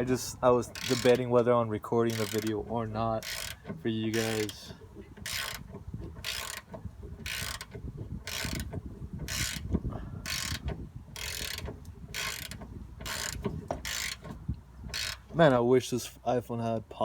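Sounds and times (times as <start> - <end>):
socket ratchet clicking: 0.7 - 1.3, 2.1 - 2.6, 3.2 - 4.6, 5.2 - 9.7, 10.3 - 14.3.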